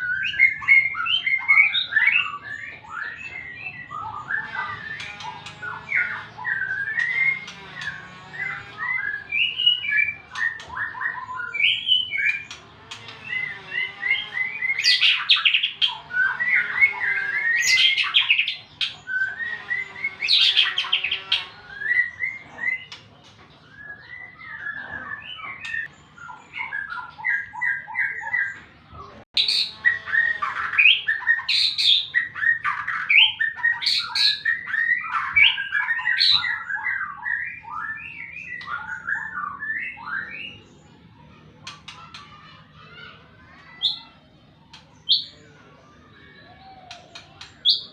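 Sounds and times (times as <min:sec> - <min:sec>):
bird singing whistles and chatter: 0:00.0 - 0:28.7, 0:29.4 - 0:47.9.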